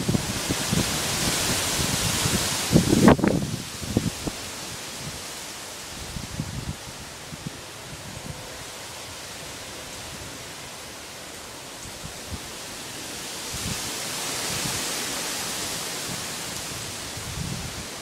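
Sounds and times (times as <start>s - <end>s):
wind buffeting microphone: 0.0s - 5.3s, 6.0s - 10.5s, 15.6s - 18.0s
wind rushing through palm trees: 0.0s - 18.0s.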